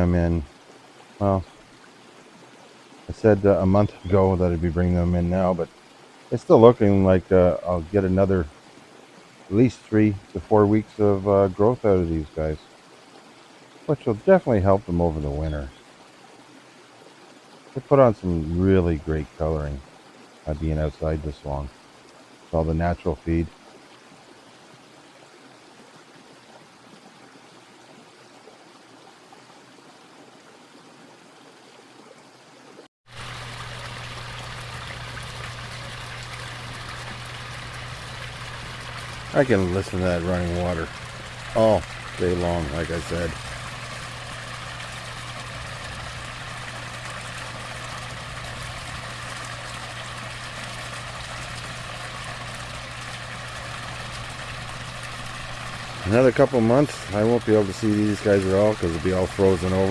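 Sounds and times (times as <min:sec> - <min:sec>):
waterfall running water: 0:00.0 - 0:59.9
low hum: 0:33.1 - 0:59.4
waterfall rushing: 0:33.1 - 0:59.9.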